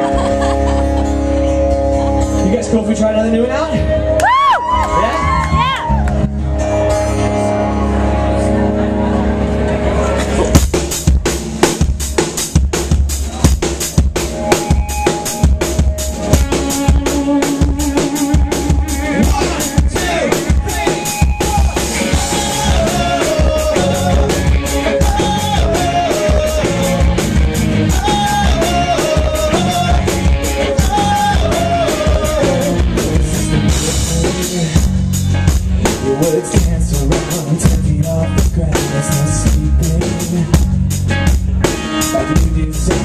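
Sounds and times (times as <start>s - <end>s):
pop-rock band playing: 0.0s - 43.0s
melodic line stepping up and down: 5.2s - 43.0s
driving drum beat: 10.4s - 43.0s.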